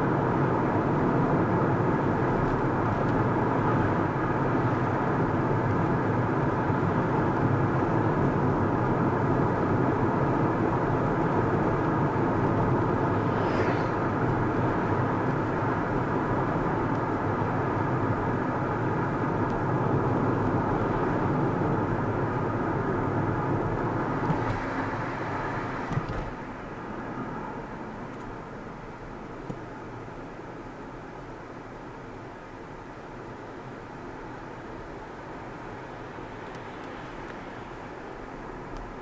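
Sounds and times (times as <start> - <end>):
car road and engine noise: 0.0 - 39.0
high whoosh: 13.0 - 14.4.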